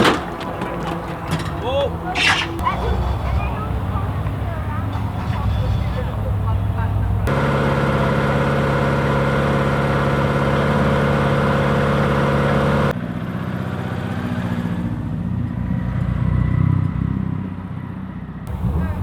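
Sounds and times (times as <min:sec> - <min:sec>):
rally car engine running: 0:00.0 - 0:19.0.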